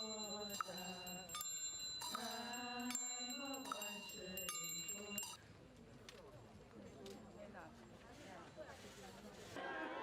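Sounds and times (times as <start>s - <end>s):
bells ringing: 0.0s - 5.4s.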